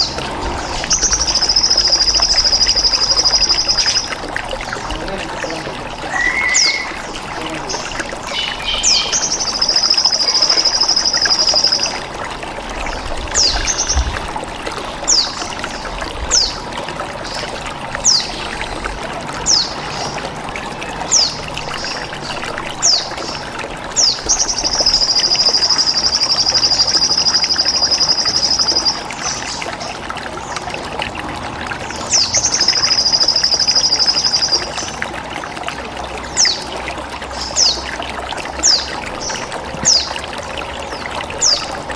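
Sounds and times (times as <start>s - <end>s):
water trickling: 0.0s - 41.9s
sunbird chirps: 0.7s - 4.1s, 8.3s - 12.0s.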